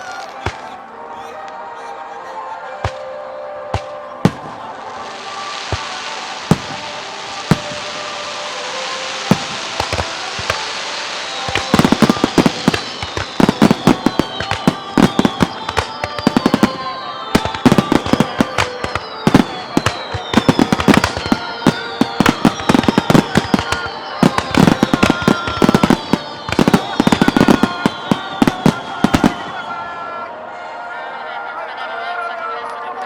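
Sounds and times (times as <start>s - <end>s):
falling whistling tones: 2.8s - 30.8s
rapid crackling bangs: 3.7s - 29.9s
firework bangs: 3.7s - 30.1s
steady hiss: 4.4s - 29.9s.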